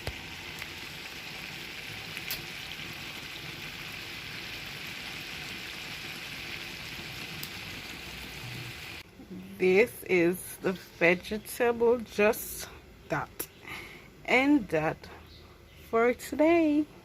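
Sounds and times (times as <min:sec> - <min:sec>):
food sizzling in a pot: 0:00.0 - 0:09.0.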